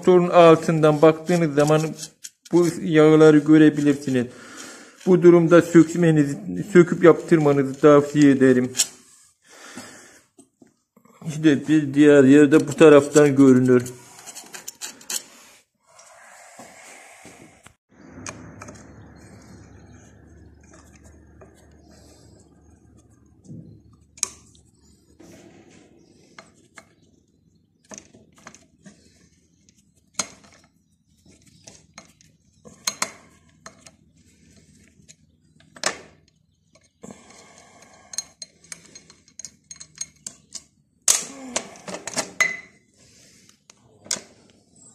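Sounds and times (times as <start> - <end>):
metal tools clinking and knocking: 12.3 - 15.3, 37.8 - 40.8, 41.8 - 42.8.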